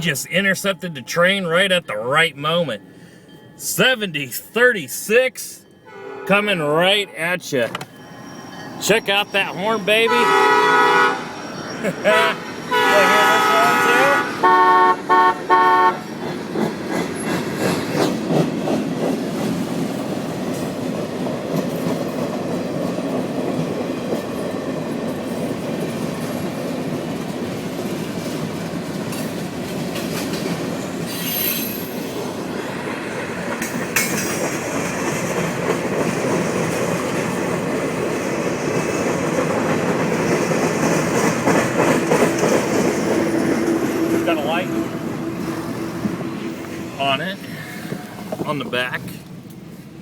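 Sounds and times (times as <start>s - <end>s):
rail cars rumbling: 0.0s - 50.0s
train horn blast: 5.8s - 6.6s, 9.9s - 11.4s, 12.1s - 16.1s
high wheel squeal: 5.8s - 14.4s, 30.8s - 32.7s
wheels clacking over rail joints: 16.0s - 47.0s.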